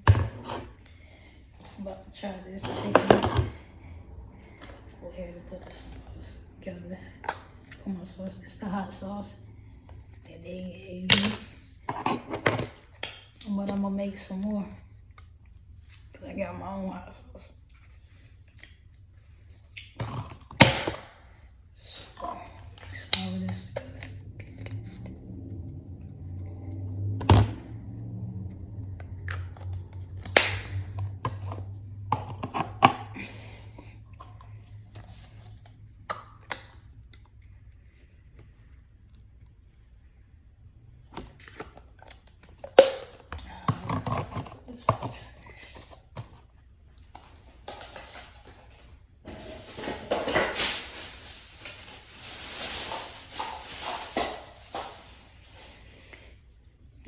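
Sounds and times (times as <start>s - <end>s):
utensil scraping containers: 0.1s - 0.8s, 2.5s - 3.6s, 11.2s - 12.8s, 29.2s - 33.2s, 41.4s - 46.4s, 47.2s - 51.0s, 52.8s - 56.1s.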